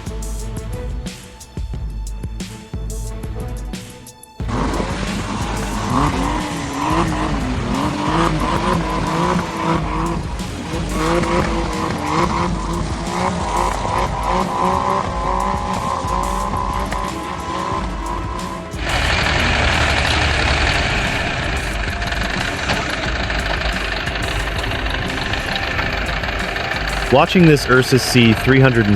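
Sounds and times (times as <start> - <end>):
tyres squealing: 4.0 - 28.9
engine revving: 4.4 - 28.9.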